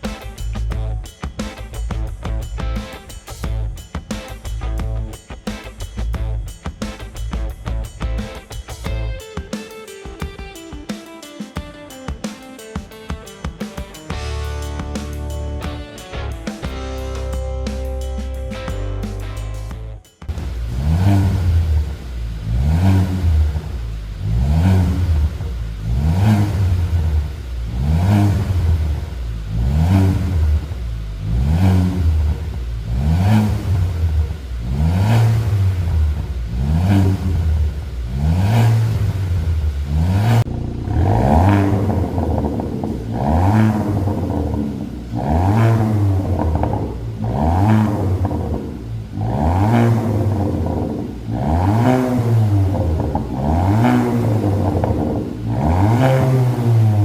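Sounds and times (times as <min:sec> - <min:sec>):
car engine revving: 0:14.1 - 0:57.0.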